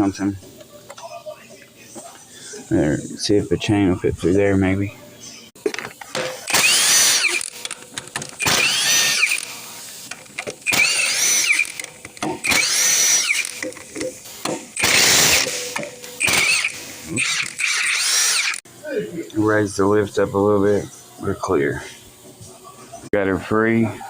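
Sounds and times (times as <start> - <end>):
power tool driving a bolt: 6.3 - 18.6.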